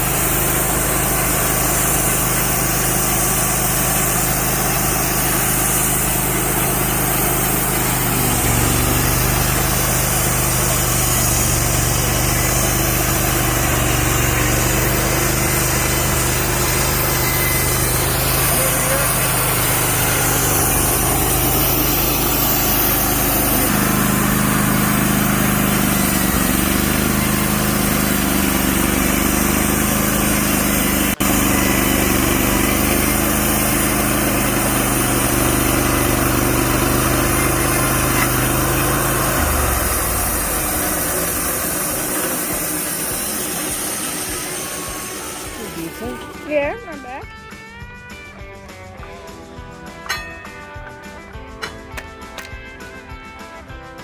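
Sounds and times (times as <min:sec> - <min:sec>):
gasoline engine humming: 0:00.0 - 0:53.3
band saw blade noise: 0:00.0 - 0:53.6.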